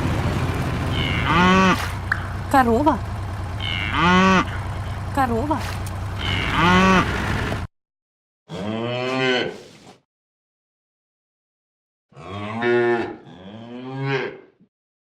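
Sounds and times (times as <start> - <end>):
cow mooing: 0.9 - 2.0, 3.6 - 4.8, 6.1 - 7.2, 8.5 - 9.6, 12.2 - 14.6.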